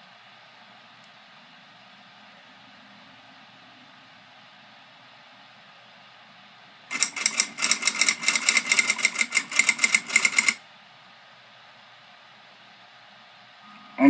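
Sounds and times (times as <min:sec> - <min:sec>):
rapid mechanical clicking: 0:06.9 - 0:10.6.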